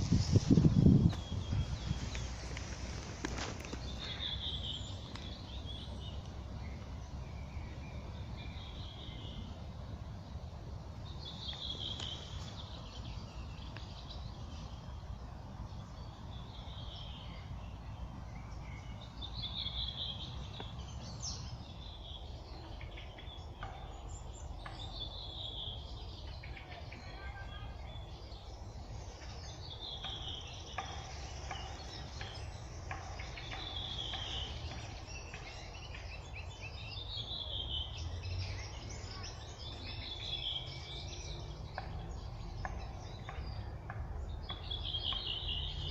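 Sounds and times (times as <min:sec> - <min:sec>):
steady low rumble: 0:00.0 - 0:27.0
songbird singing: 0:00.0 - 0:45.9.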